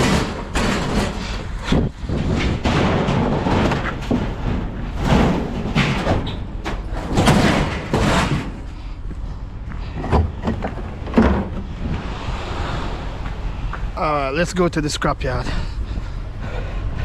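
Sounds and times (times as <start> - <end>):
loud bangs and thuds: 0.0 - 8.7, 10.0 - 12.2.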